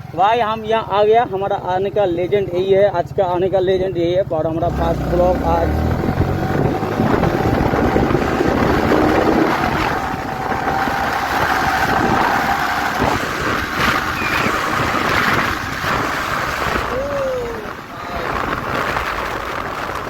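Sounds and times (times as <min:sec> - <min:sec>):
motorcycle running: 0:00.0 - 0:20.0
wind rushing over microphone: 0:04.7 - 0:20.0.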